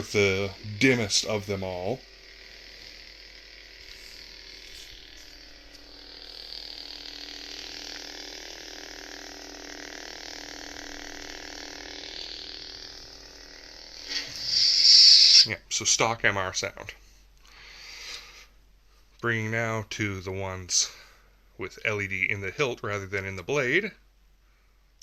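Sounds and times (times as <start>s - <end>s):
toy lightsaber idle hum: 0.0s - 16.6s.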